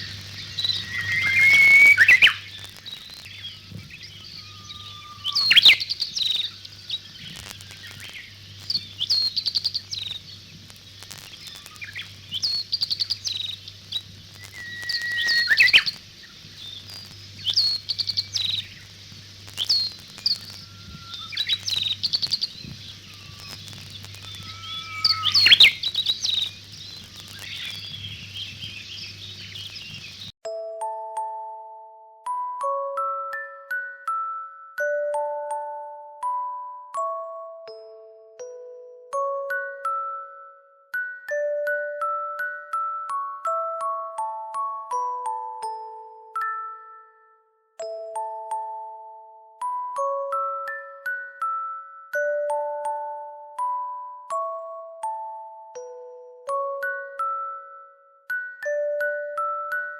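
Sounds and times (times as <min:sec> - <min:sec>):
birds chirping and whistling: 0:00.0 - 0:30.3.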